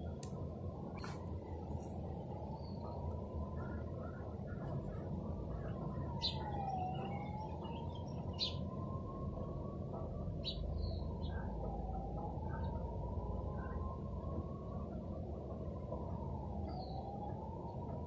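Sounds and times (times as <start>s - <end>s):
low background hum: 0.0s - 18.0s
bird chirping: 5.6s - 8.6s.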